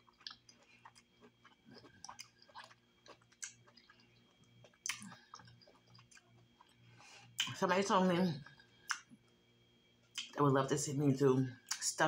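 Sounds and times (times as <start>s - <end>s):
faint wet chewing: 0.0s - 7.6s.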